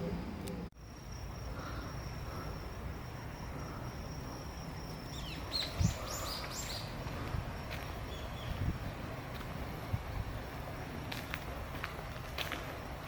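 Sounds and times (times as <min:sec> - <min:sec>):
high-pitched insect tone: 0:00.8 - 0:09.4.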